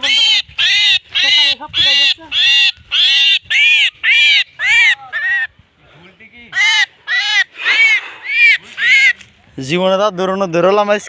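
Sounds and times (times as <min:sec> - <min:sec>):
bird calling harshly: 0:00.0 - 0:05.6, 0:06.4 - 0:09.5.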